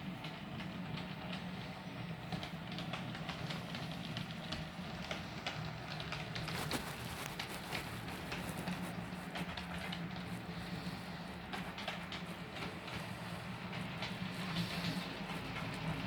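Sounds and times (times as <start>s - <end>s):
wheels clicking on rails: 0.0s - 16.0s
model train motor hum: 7.3s - 16.0s.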